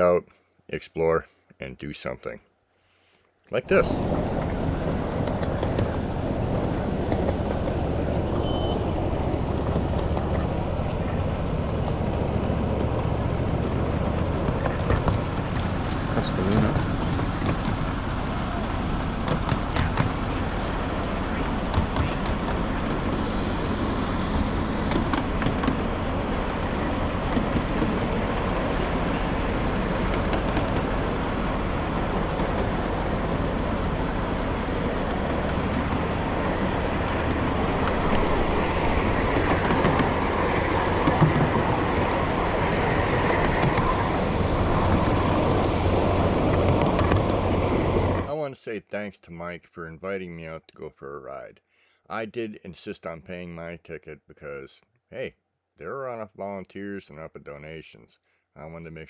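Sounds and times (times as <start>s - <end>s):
miniature train rolling on track: 3.7s - 48.3s.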